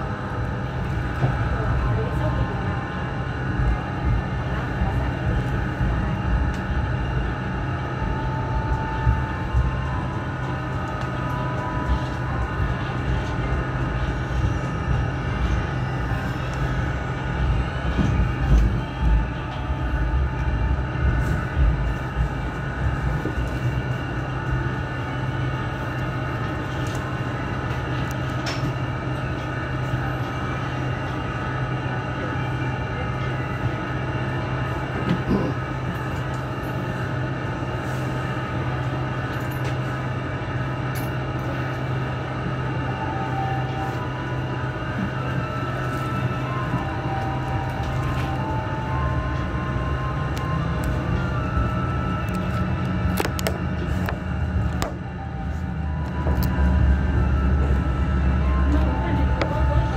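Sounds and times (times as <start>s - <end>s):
train interior low hum: 0.0s - 59.9s
wheels rumbling on track: 0.0s - 59.9s
whining tones: 41.9s - 59.9s.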